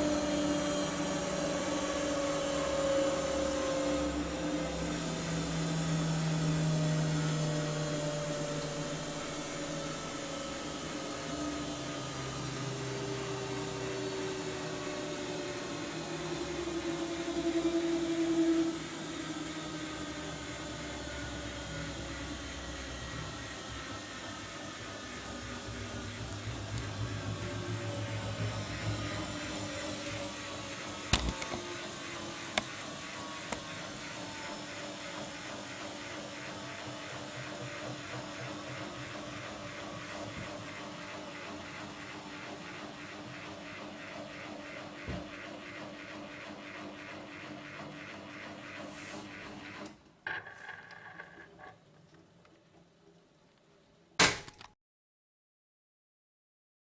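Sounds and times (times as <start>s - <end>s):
washing machine motor hum: 0.0s - 50.0s.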